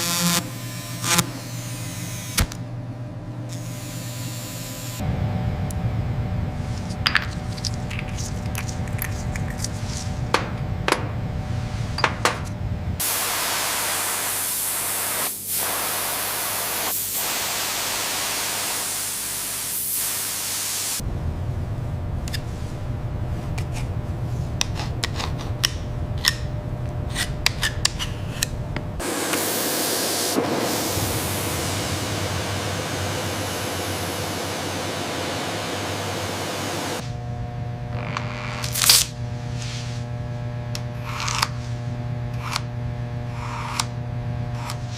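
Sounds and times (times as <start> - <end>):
low rumbling: 5.0 - 13.0, 21.0 - 27.5
spraying hiss: 13.0 - 21.0.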